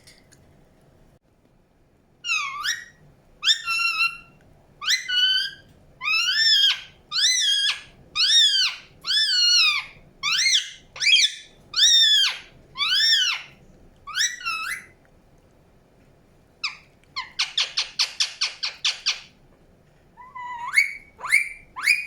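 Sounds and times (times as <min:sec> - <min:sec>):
parakeet squawking: 0:02.2 - 0:13.5, 0:14.1 - 0:14.9, 0:16.6 - 0:19.3, 0:20.2 - 0:22.0.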